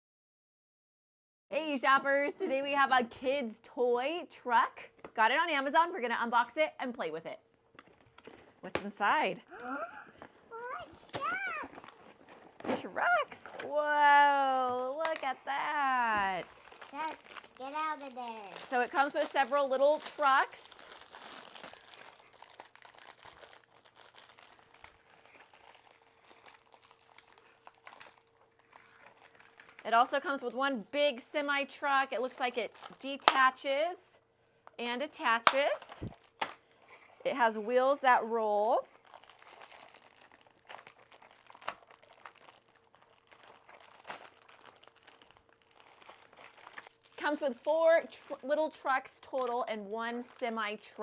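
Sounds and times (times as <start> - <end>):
plastic packaging crinkling: 10.3 - 30.6, 32.0 - 33.6, 35.5 - 37.1, 38.6 - 51.0.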